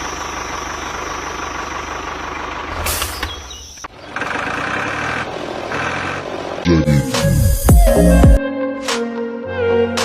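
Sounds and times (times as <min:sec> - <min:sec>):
music: 0:06.8 - 0:10.0.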